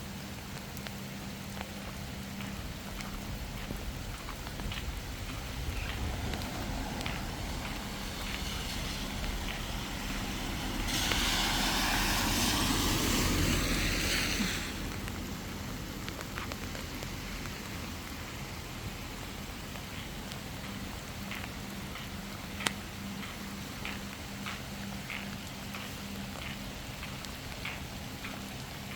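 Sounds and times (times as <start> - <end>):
steady rain: 0.0 - 28.9
rushing hiss: 5.2 - 15.4.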